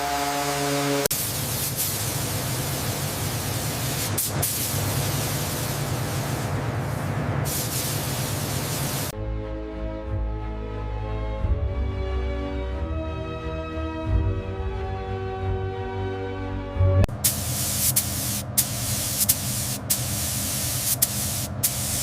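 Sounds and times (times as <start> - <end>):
loud hissing rush: 0.0 - 9.1, 17.1 - 22.0.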